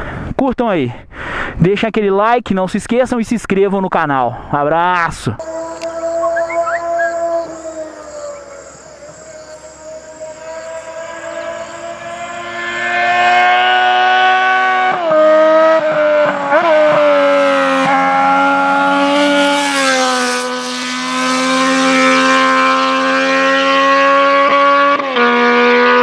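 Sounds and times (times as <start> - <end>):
motorcycle engine loud exhaust: 5.4 - 26.0.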